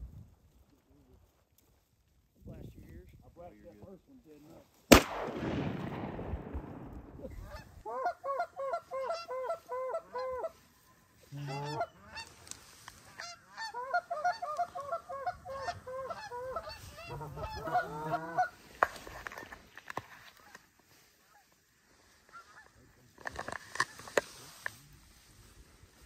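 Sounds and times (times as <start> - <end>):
gunshot echo: 4.9 - 7.6
goose honks and clucks: 7.3 - 10.6, 11.2 - 18.6, 22.2 - 22.8.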